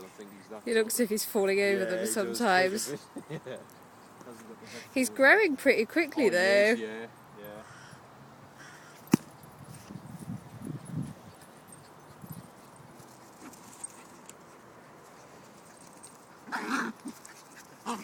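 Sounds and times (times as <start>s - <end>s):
young dog grumbling: 16.5s - 17.2s.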